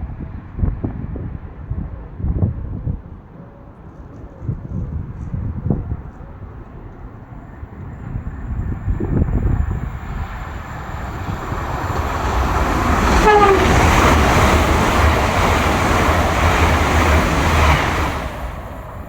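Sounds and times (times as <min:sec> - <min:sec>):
train passing: 0:03.6 - 0:19.0
train horn blast: 0:12.8 - 0:14.9.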